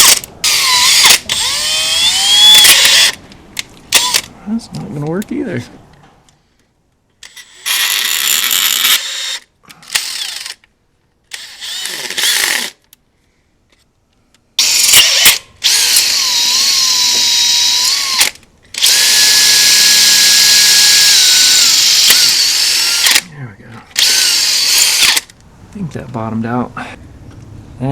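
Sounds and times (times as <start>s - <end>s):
electric drill boring metal: 0.0s - 3.2s, 11.4s - 12.7s, 14.6s - 23.2s, 24.0s - 25.2s.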